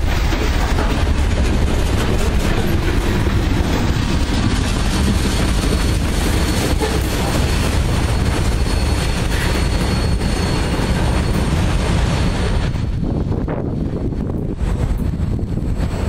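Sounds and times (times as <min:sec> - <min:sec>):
freight train cars rolling past: 0:00.0 - 0:16.0.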